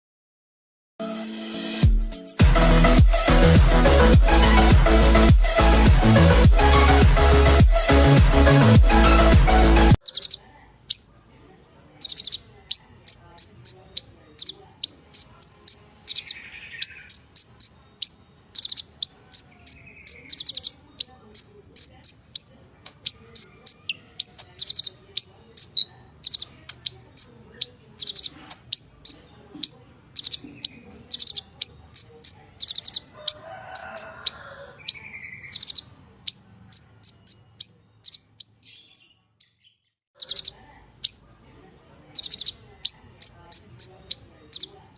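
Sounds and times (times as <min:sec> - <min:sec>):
bird chirping song: 0:09.9 - 0:44.9.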